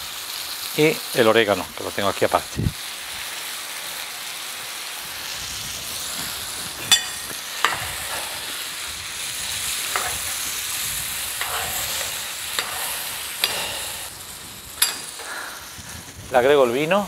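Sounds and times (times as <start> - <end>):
meat sizzling in oil: 0.0 - 17.0
spoon knocking against dish: 6.9 - 8.3.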